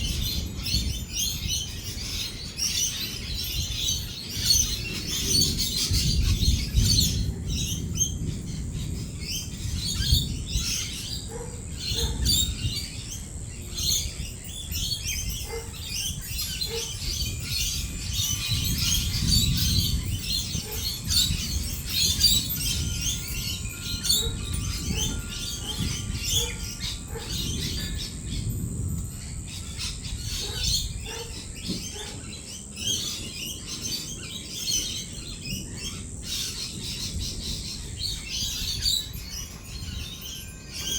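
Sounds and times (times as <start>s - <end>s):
lorikeets chattering and screeching: 0.0s - 40.9s
rolling thunder: 3.6s - 13.2s, 15.2s - 32.0s.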